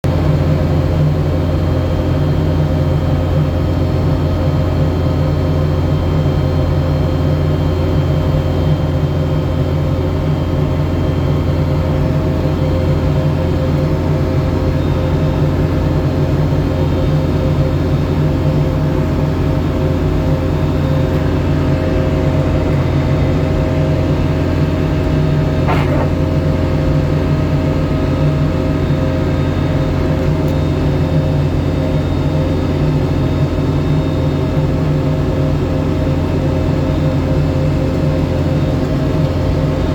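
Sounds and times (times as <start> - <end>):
snow-clearing machine engine: 0.1 - 39.9
brief knock: 25.7 - 26.2.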